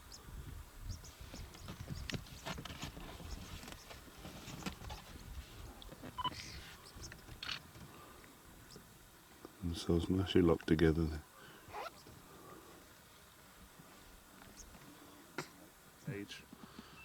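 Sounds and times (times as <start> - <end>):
rustling: 1.2 - 8.4.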